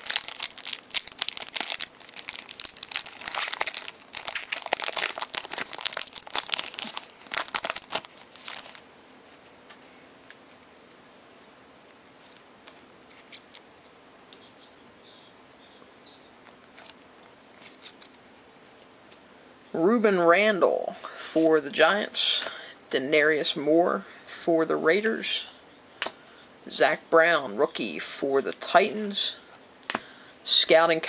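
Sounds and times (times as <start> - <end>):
card pack wrapper crinkling: 0.0 - 8.8, 16.6 - 18.2.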